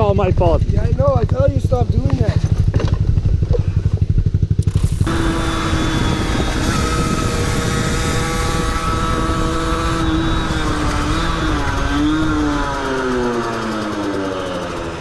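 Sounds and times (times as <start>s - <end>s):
motorcycle engine at high revs: 0.0s - 15.0s
steady rushing noise: 4.4s - 13.0s.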